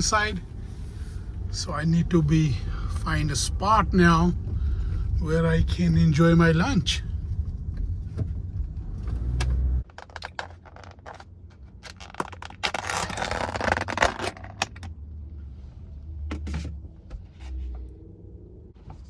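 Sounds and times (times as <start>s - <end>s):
low rumble: 0.0s - 9.8s
rustling and scraping objects: 7.2s - 18.0s.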